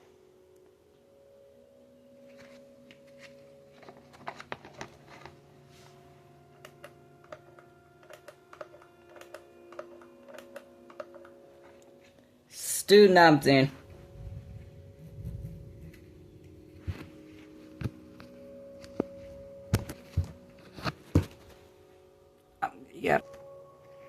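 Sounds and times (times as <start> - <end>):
faint steady hum: 0.0 - 24.0
plastic parts clicking: 6.6 - 11.4.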